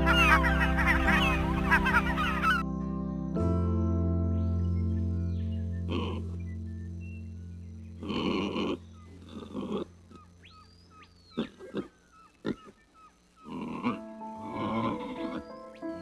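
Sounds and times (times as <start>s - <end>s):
light background music: 0.0s - 10.0s, 13.7s - 16.0s
animal grunting calls: 5.9s - 6.5s, 8.0s - 16.0s.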